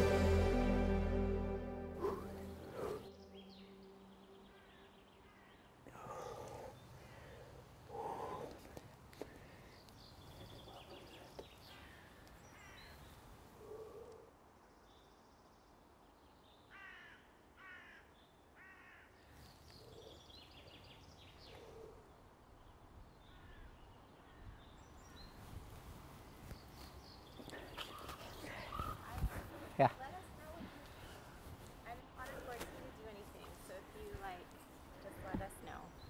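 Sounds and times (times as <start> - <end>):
bird calls: 2.0 - 14.2, 18.6 - 31.6.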